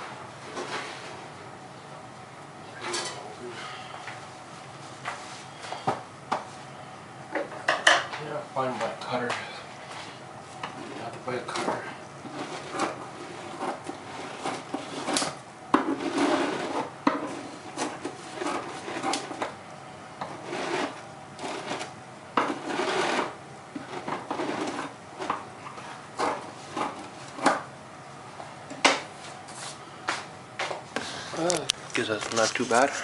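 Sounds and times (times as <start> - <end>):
rubbing noise: 20.4 - 21.8.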